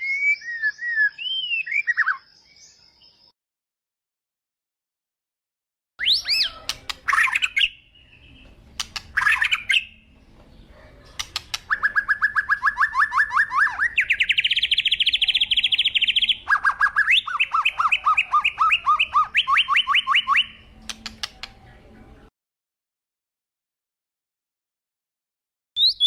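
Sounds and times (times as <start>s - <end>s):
birds chirping and trilling: 0.0s - 3.4s, 6.0s - 22.3s, 25.8s - 26.0s.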